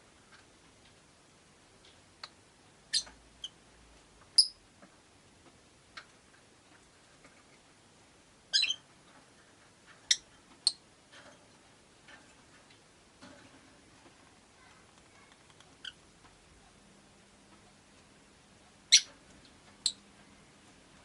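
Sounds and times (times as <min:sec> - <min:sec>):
lovebirds chirping: 0:02.2 - 0:03.6, 0:04.4 - 0:04.6, 0:08.5 - 0:08.9, 0:18.9 - 0:19.1, 0:19.8 - 0:20.1.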